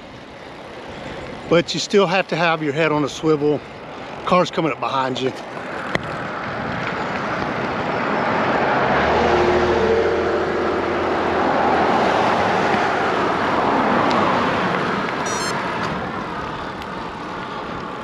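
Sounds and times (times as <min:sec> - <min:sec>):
cars passing: 0:00.1 - 0:18.0.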